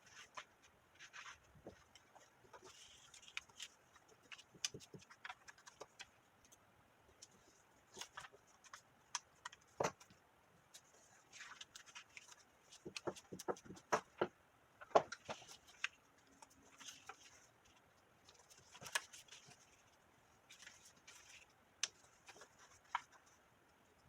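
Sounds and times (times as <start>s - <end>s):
soft rustles: 0.0s - 8.9s, 15.1s - 23.9s.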